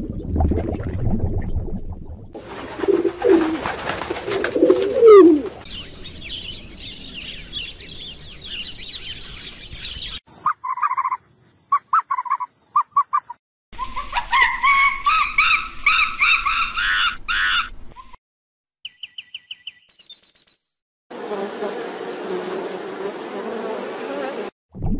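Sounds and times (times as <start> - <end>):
pigeons cooing: 2.4 - 5.6
wings fluttering: 2.4 - 5.6
sparrow chirping rapidly: 5.1 - 13.4, 18.9 - 20.6.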